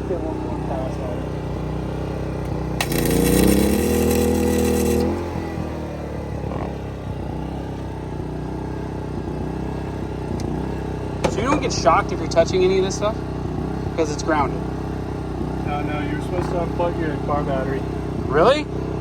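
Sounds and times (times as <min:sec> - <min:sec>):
vehicle engine idling: 0:00.0 - 0:19.0
arc welder crackling hiss: 0:02.4 - 0:05.6.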